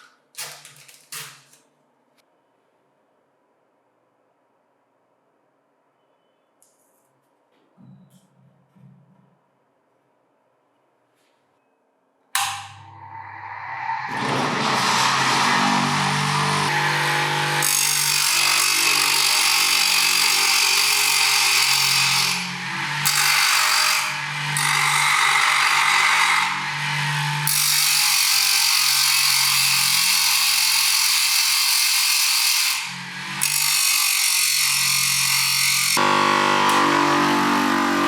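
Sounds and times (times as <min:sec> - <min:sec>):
harsh grinding noise: 0:12.4 - 0:38.0
bench grinder motor hum: 0:12.7 - 0:38.0.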